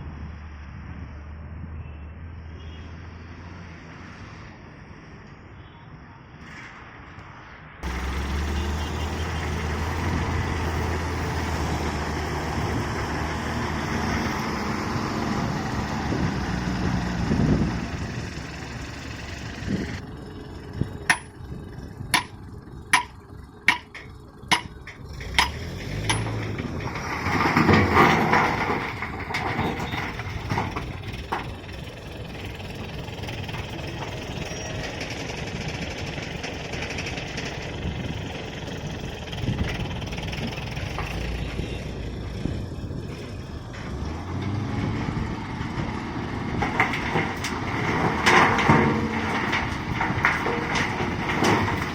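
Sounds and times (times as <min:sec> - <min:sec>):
heavy machinery diesel engine: 0:07.8 - 0:51.9
sharp knocks: 0:23.0 - 0:26.4.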